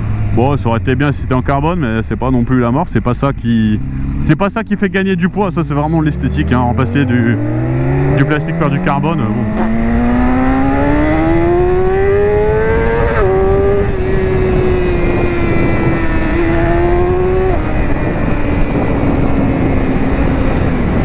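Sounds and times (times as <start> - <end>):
motorcycle engine accelerating: 5.8 - 21.0
wind rush: 9.3 - 21.0.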